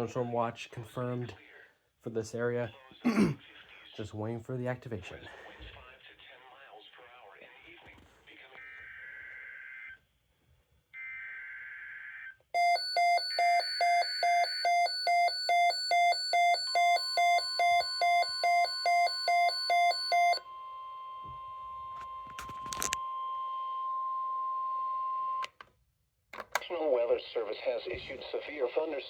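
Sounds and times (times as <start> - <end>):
receiver alarm beeps: 12.6 - 25.5.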